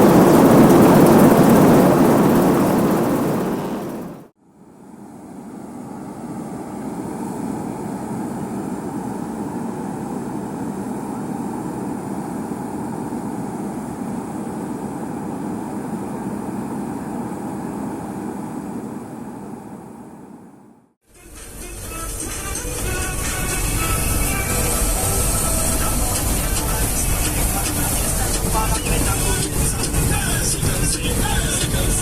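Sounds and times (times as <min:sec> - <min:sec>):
diesel engine running: 0:00.0 - 0:04.3, 0:21.4 - 0:32.0.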